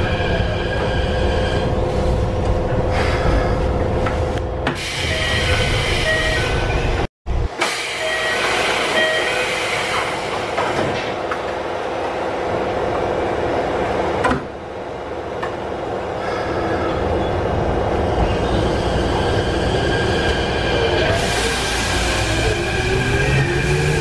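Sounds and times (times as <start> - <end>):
train doors sliding shut: 4.0 - 6.2, 7.6 - 11.4.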